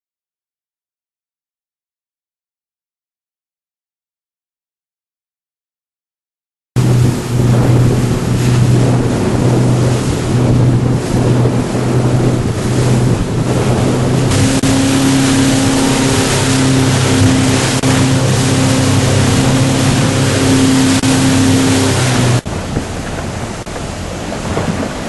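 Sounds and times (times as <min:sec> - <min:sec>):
higher engine tone: 0:06.8 - 0:24.4
motorboat engine droning: 0:06.8 - 0:25.0
wind and water rushing: 0:06.8 - 0:25.0.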